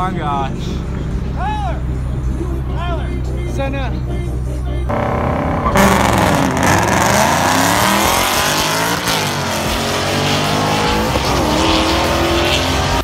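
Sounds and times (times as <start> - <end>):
car engines revving hard: 4.9 - 13.0.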